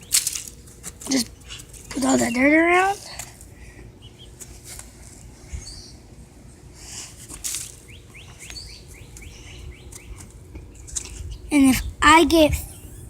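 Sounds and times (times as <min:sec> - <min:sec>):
small bird chirping: 0:05.5 - 0:06.0, 0:07.8 - 0:12.0.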